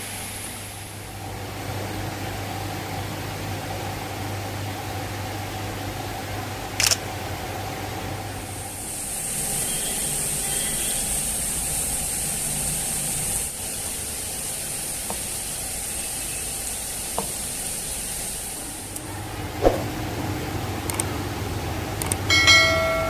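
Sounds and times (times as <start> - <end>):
steady high hiss: 0.0 - 1.3, 8.4 - 19.0
faint clicks: 20.9 - 21.1, 22.0 - 22.3.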